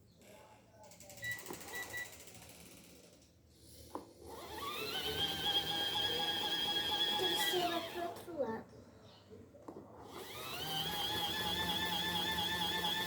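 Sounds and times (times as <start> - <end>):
spin-dryer motor whine: 4.3 - 8.2, 10.1 - 13.0.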